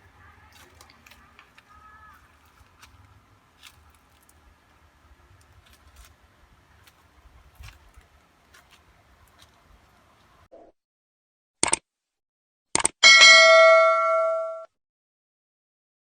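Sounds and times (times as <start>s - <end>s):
sharp clicks and ticks: 11.6s - 11.8s, 12.8s - 13.0s.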